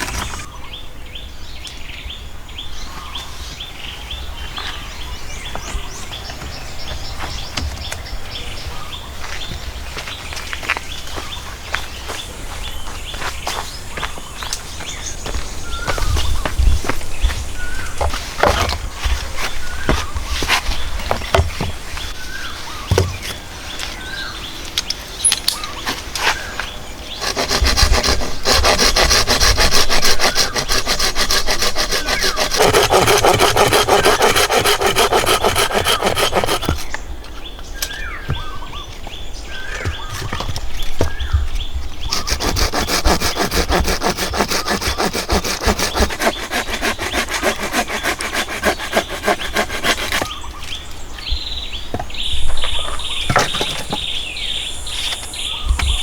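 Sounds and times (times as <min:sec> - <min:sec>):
hand saw cutting wood: 0:00.0 - 0:00.5, 0:27.1 - 0:36.9, 0:42.1 - 0:50.4
birds chirping: 0:00.0 - 0:56.0.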